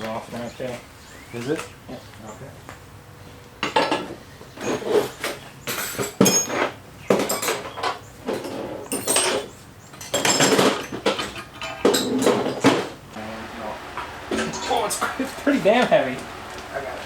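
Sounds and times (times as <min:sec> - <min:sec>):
metal engine parts clanking: 0:03.6 - 0:13.0.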